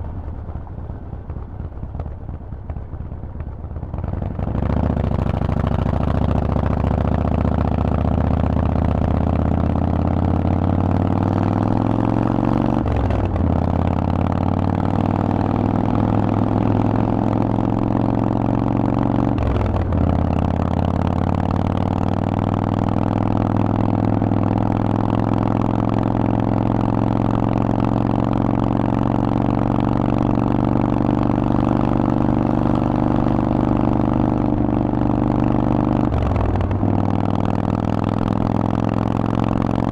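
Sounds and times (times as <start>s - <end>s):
motorcycle engine revving through gears: 4.0s - 39.9s.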